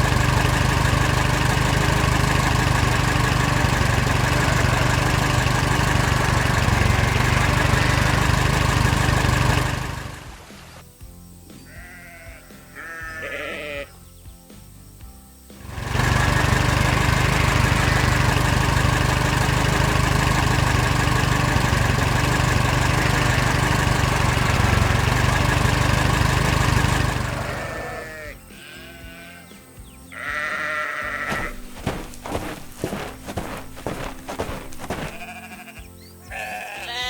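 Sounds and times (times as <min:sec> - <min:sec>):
background music: 0:10.2 - 0:15.7
bleat-like animal calls: 0:11.6 - 0:14.0, 0:27.4 - 0:37.0.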